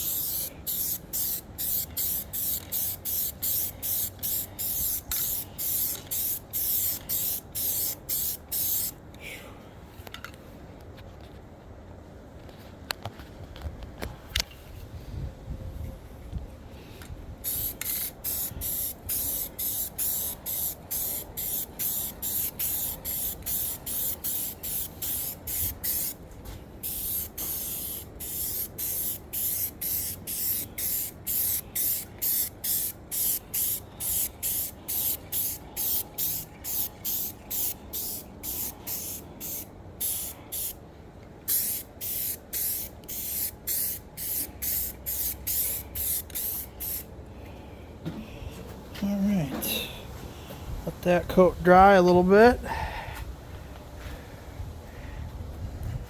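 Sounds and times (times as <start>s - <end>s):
paint spray hissing: 0.0s - 9.0s, 17.4s - 26.2s, 26.8s - 40.8s, 41.5s - 47.1s.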